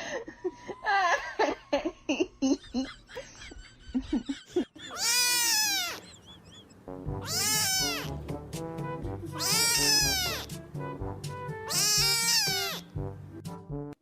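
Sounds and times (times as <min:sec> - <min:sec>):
cat meowing: 0:04.9 - 0:06.1, 0:07.2 - 0:08.2, 0:09.3 - 0:10.5, 0:11.7 - 0:12.9
background music with a beat: 0:08.1 - 0:11.8, 0:12.9 - 0:14.0.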